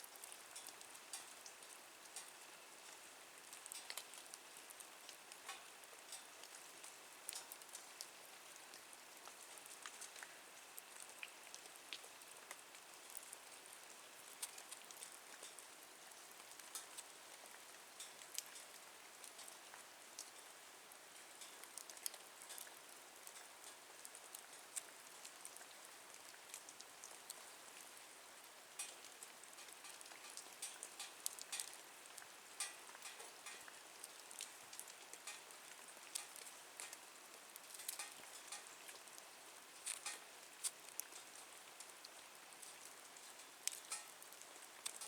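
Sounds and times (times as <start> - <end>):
wood fire crackling and popping: 28.8 - 35.5, 37.6 - 39.1, 39.7 - 41.4, 42.6 - 44.2.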